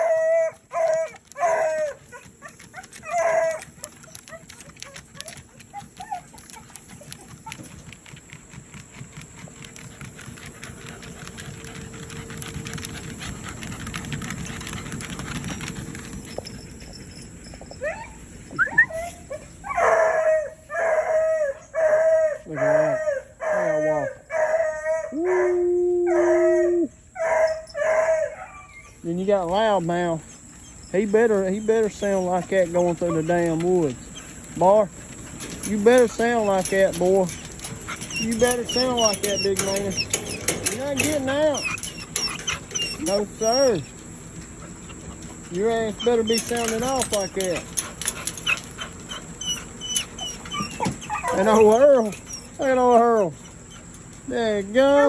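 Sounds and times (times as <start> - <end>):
hound barking and bawling: 0.0 - 55.0
low steady background noise: 0.0 - 55.0.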